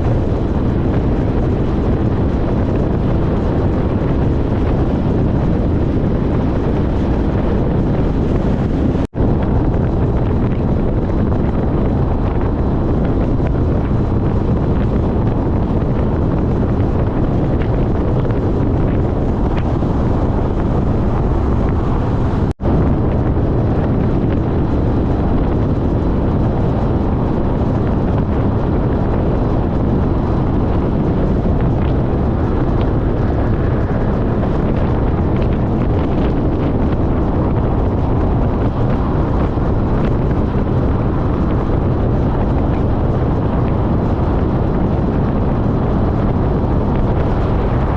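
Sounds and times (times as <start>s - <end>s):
motorcycle engine and road noise: 0.0s - 47.9s
wind buffeting microphone: 0.0s - 47.9s.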